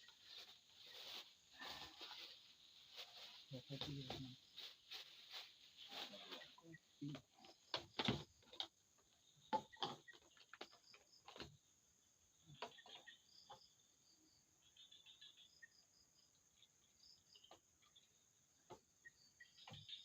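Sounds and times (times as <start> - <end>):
knocks and clatters of handling: 7.2 - 8.8, 9.5 - 11.6
high insect chirps: 9.0 - 20.0.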